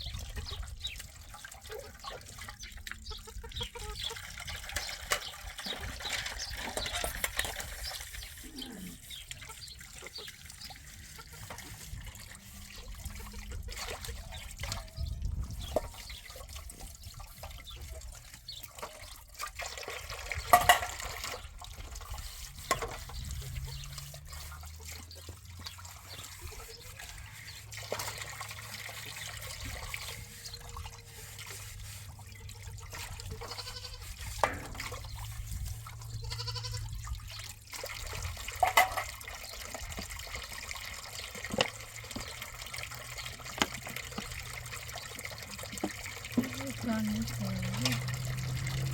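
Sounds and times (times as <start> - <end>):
water trickling: 0.0 - 48.9.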